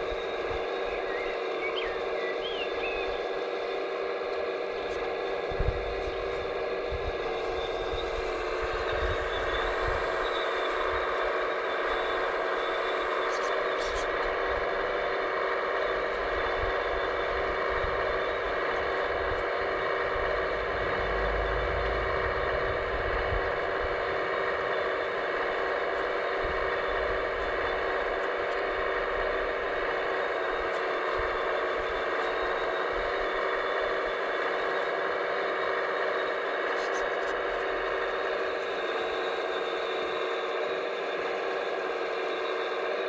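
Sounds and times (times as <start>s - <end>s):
mechanical hum and whine: 0.0s - 43.0s
low rumble: 20.4s - 24.1s.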